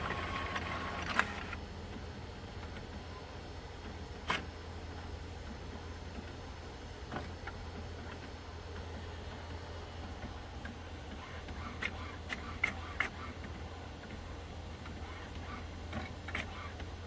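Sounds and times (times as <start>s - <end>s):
printer mechanical clicks: 0.0s - 1.6s, 10.2s - 14.2s, 14.8s - 17.0s
printer humming: 0.0s - 17.0s.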